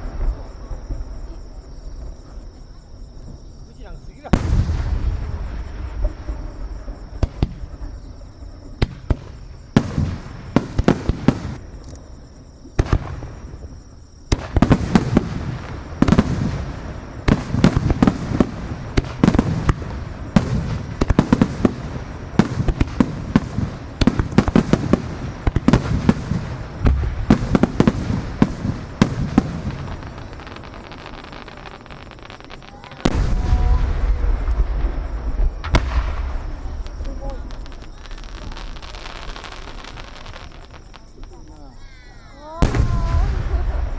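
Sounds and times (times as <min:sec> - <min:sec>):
fireworks bursting: 0:00.0 - 0:43.9.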